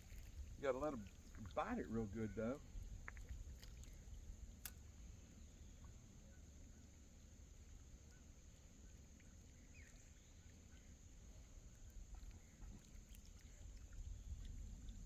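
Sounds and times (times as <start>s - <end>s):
wind rumble on microphone: 0.0s - 4.6s, 13.5s - 15.0s
faint high hum: 0.0s - 15.0s.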